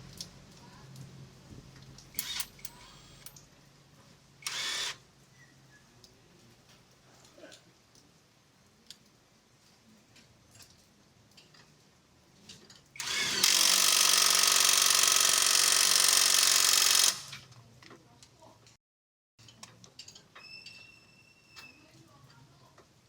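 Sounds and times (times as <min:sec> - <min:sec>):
power tool whine: 0:02.2 - 0:03.3, 0:04.4 - 0:05.0, 0:13.0 - 0:17.4.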